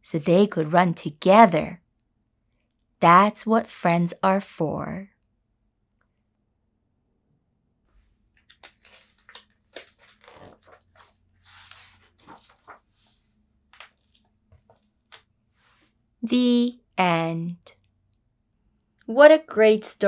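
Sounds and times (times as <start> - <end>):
paper pages rustling: 0.2 - 1.0, 8.0 - 15.3.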